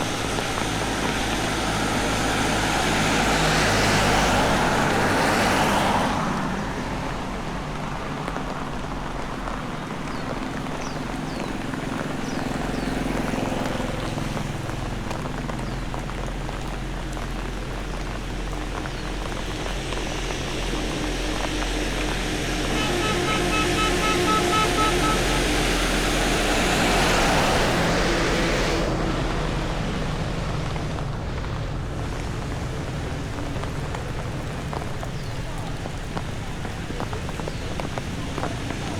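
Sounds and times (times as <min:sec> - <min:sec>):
steady rain hiss: 0:00.0 - 0:38.9
passing engine hum: 0:10.0 - 0:38.9
rapid beeping tones: 0:22.5 - 0:25.9.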